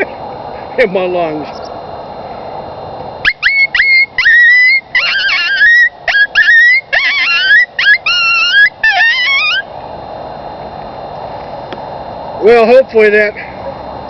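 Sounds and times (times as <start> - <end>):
horn call yips and howls: 3.2 - 9.7.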